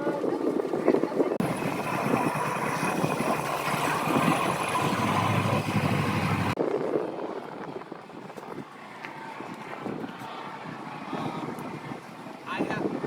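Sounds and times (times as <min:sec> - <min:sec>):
outdoor noise: 0:00.0 - 0:13.0
vehicle engine idling: 0:01.4 - 0:06.6.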